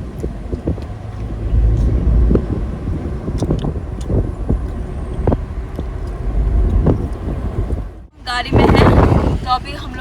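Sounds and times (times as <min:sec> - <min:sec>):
car engine rumble: 0:00.0 - 0:10.0.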